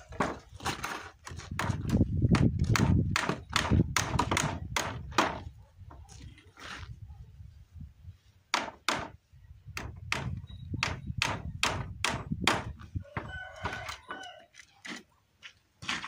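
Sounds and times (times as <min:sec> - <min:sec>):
hammer driving nails into wood: 0:01.6 - 0:05.4.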